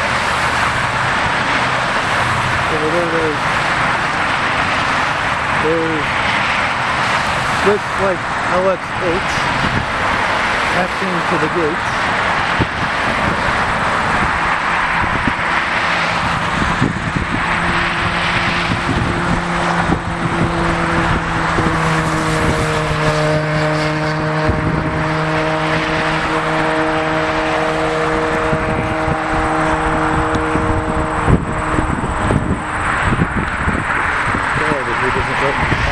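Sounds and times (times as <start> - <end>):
jet engines rushing: 0.0 - 35.9.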